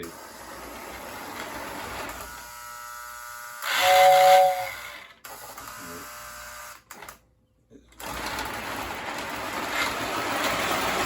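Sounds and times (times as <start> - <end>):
model train motor whine: 0.0 - 7.2
two-note electric train whistle: 3.7 - 4.9.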